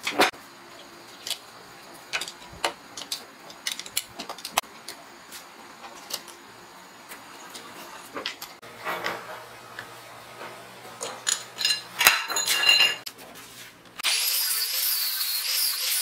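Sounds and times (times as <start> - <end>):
hand tools clicking: 2.1 - 5.0.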